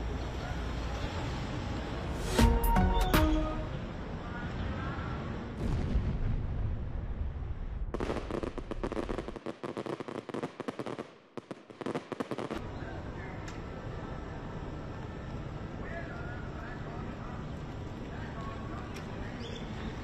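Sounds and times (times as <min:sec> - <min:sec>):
fireworks crackling and popping: 0:05.6 - 0:12.6.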